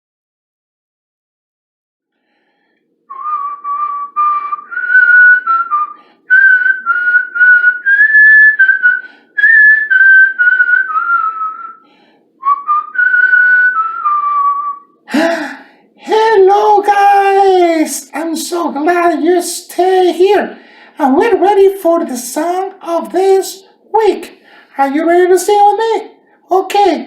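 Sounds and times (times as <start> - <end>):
person whistling a tune: 3.1 - 11.8, 12.4 - 15.3.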